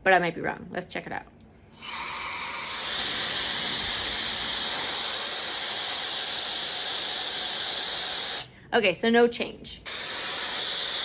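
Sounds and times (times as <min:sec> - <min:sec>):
hair dryer blowing air: 0:01.8 - 0:08.5, 0:09.9 - 0:11.0.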